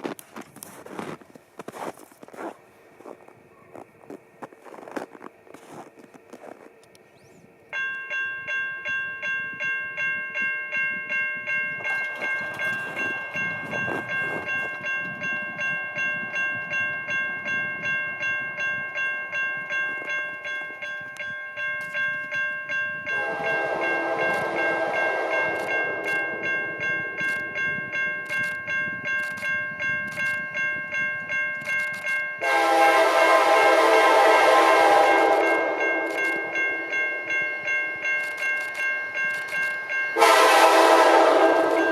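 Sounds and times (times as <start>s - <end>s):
diesel train running: 0.0s - 9.4s, 10.9s - 41.9s
crossing bell ringing: 0.1s - 41.9s
locomotive air horn blast: 23.1s - 26.5s, 32.4s - 37.2s, 40.2s - 41.9s.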